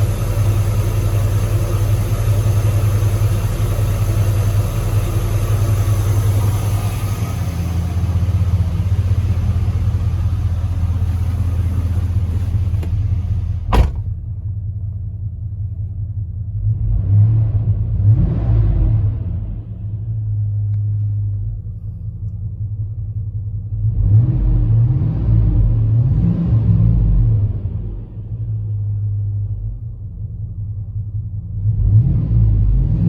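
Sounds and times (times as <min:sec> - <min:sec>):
truck engine humming: 0:00.0 - 0:15.2
sharp thump: 0:13.7 - 0:14.3.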